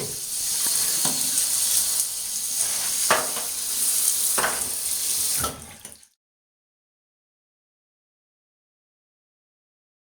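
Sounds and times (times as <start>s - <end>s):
shower water hissing: 0.0s - 5.8s.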